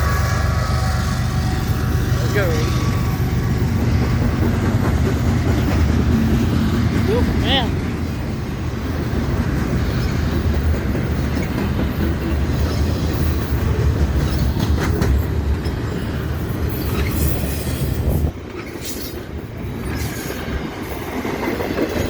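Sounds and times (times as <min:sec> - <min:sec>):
freight train rumbling on rails: 0:00.0 - 0:22.0.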